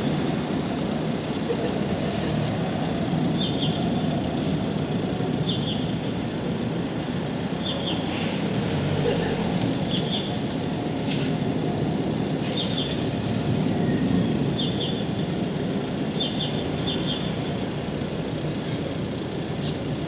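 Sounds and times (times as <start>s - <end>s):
songbird chirping: 9.6s - 10.6s, 14.2s - 15.1s, 15.9s - 17.5s.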